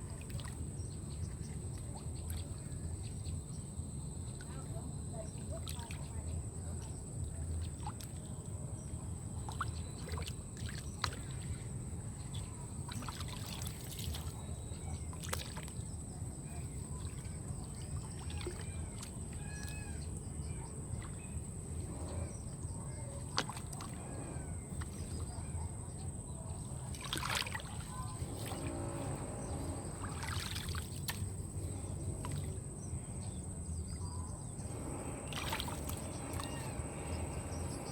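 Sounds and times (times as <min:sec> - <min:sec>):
water sloshing and trickling: 0:00.0 - 0:37.9
steady low rumble: 0:20.1 - 0:37.9.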